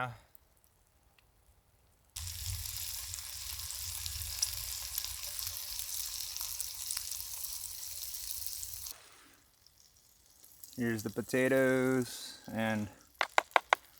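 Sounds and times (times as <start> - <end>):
bacon fat sizzling: 2.2 - 13.9
sharp fat pops: 13.2 - 13.9.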